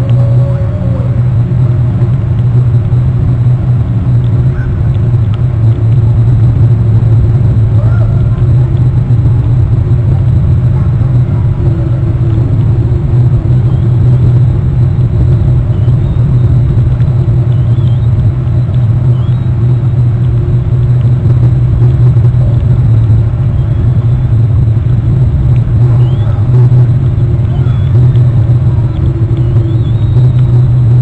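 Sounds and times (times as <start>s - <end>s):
loud low rumble: 0.0s - 31.0s
eagles chirping: 27.4s - 28.2s.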